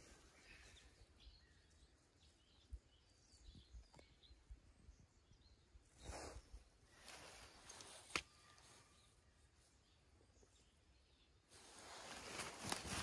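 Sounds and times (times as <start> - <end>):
distant bird chirps: 0.0 - 13.0
brief rustle: 7.0 - 8.8, 11.6 - 13.0.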